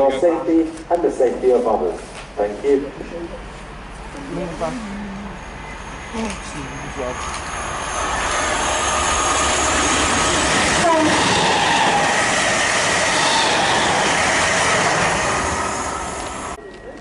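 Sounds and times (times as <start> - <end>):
train wheels rushing on rails: 5.5 - 16.6.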